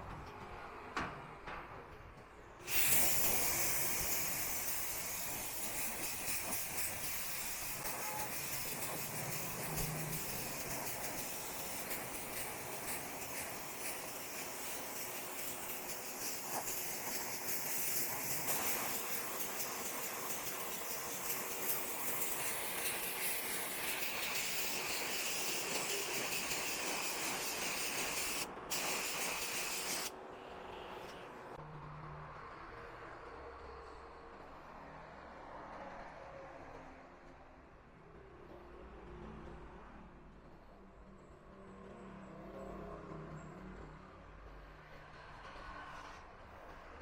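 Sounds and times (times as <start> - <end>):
paint spraying hiss: 2.6 - 30.1.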